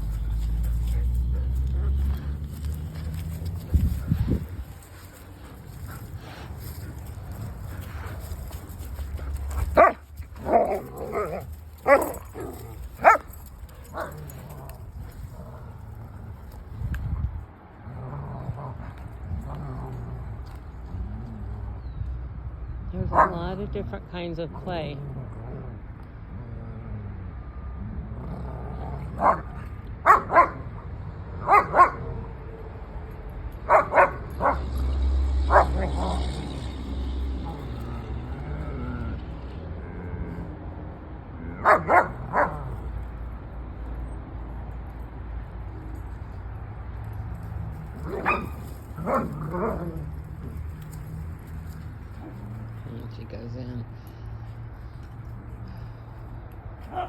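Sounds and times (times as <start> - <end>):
dogs barking: 9.1 - 14.6, 23.1 - 23.4, 29.1 - 32.3, 33.6 - 36.5, 41.5 - 42.9, 47.9 - 50.0.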